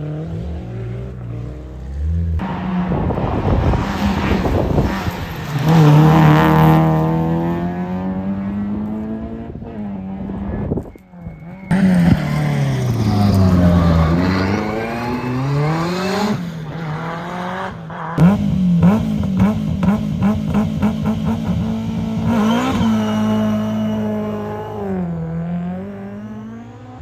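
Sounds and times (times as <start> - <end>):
rally car engine revving: 0.0 - 27.0
engine pulsing rapidly: 11.3 - 16.5.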